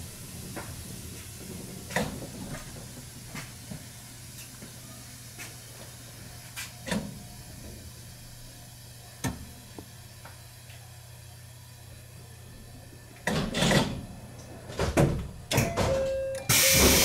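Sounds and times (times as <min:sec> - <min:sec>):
electric train hum: 0:00.0 - 0:17.0
clicks and clunks from wheels: 0:00.5 - 0:04.5, 0:13.2 - 0:17.0.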